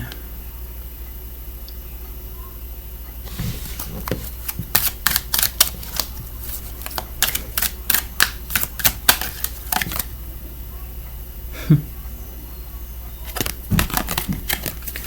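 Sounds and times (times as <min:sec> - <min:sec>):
cards being shuffled: 0:03.3 - 0:10.1, 0:13.2 - 0:15.0
sharp card snaps: 0:04.2 - 0:10.1, 0:13.3 - 0:15.0.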